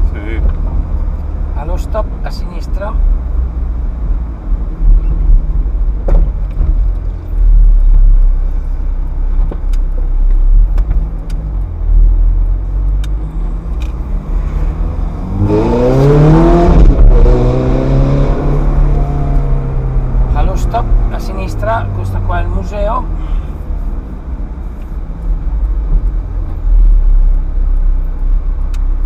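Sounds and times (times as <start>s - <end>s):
sports car engine running: 0.0s - 29.0s
engine revving: 12.7s - 23.5s.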